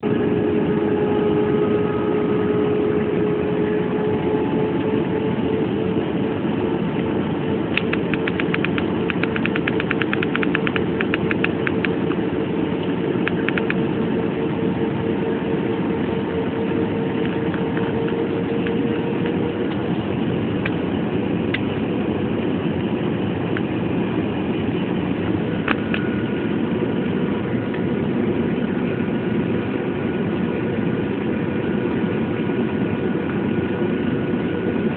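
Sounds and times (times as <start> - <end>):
airplane engine drone: 0.0 - 34.9
held hum: 0.0 - 34.9
rapid light ticks: 7.8 - 12.2.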